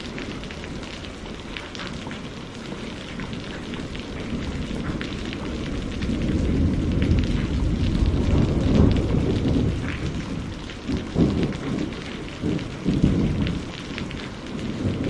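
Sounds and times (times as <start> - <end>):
steady rainfall: 0.0 - 15.0
thunder rumble: 3.1 - 15.0.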